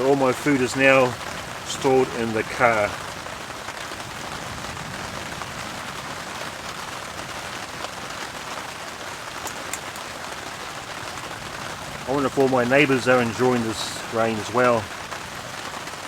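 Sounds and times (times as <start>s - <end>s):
rain on a tarp: 0.0s - 16.0s
sharp drip ticks: 9.4s - 10.2s.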